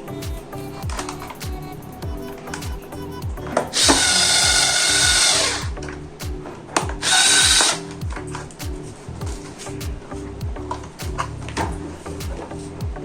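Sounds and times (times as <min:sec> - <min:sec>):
background music with bass: 0:00.0 - 0:13.0
power tool motor whining: 0:03.5 - 0:05.7.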